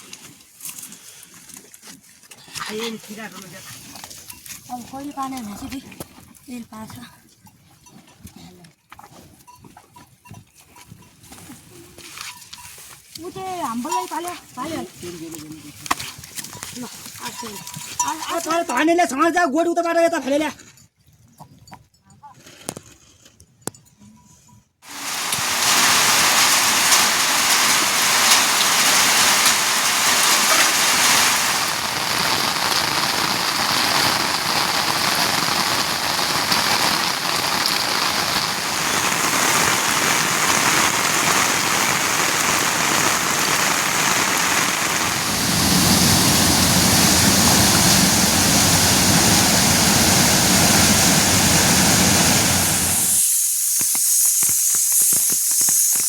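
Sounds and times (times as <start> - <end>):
heavy rain falling: 24.8 - 53.3.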